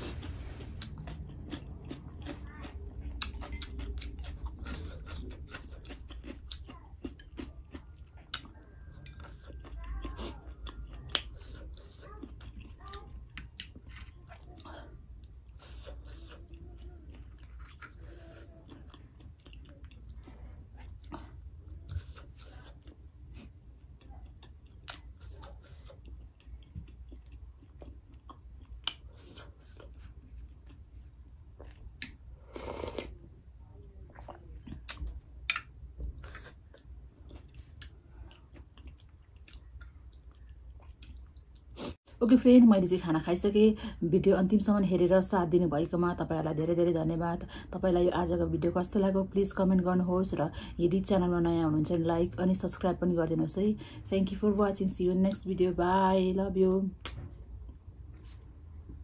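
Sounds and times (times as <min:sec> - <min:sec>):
person chewing food: 0:00.0 - 0:33.3, 0:34.1 - 0:42.0.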